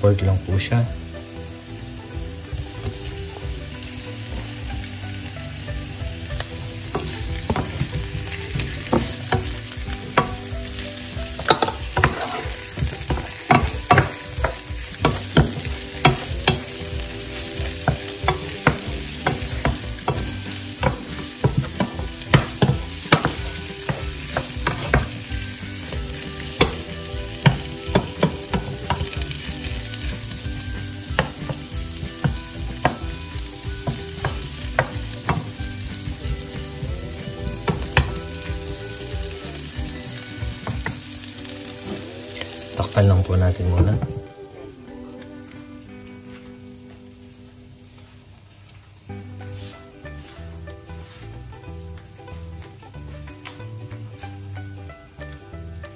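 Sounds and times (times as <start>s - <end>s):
shrimp sizzling in a pan: 0.0s - 55.9s
wooden spatula scraping a pan: 6.3s - 39.1s, 49.4s - 51.4s.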